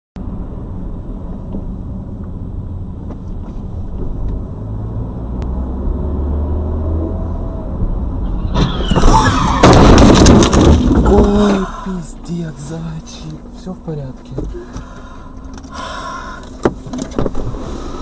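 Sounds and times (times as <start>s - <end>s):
car engine and road rumble: 0.2s - 18.0s
loud car crash: 8.2s - 11.9s.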